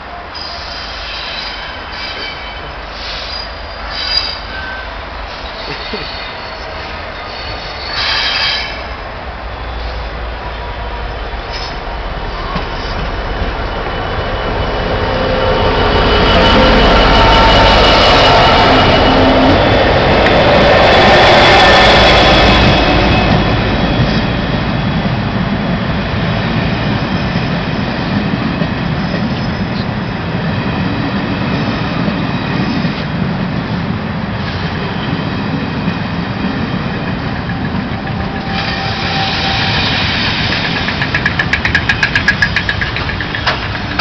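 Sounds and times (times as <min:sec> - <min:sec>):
diesel locomotive: 0:00.0 - 0:44.0
train wheels rumbling on rail: 0:00.0 - 0:44.0
wheel clicks over rail joints: 0:40.4 - 0:44.0.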